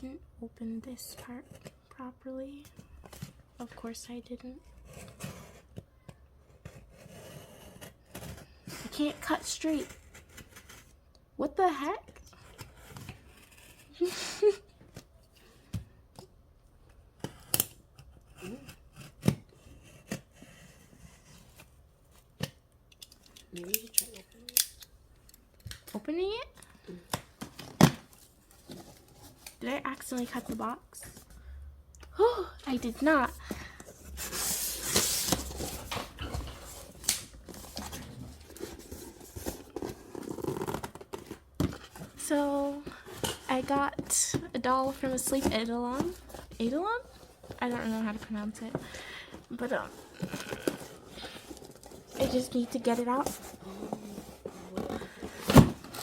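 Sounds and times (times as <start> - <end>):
scissors cutting cardboard: 17.2 - 21.7
cardboard packaging rustling: 33.0 - 56.0.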